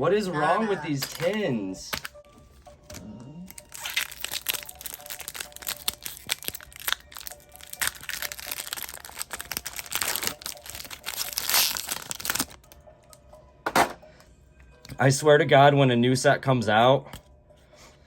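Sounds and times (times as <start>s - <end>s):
foil wrapper crinkling: 3.5s - 12.6s.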